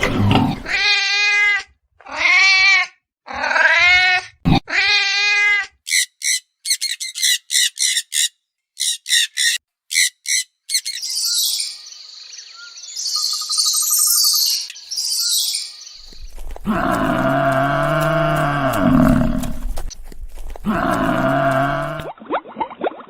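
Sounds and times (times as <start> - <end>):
bird twittering: 5.9 - 16.6
high bird chirps: 5.9 - 16.6.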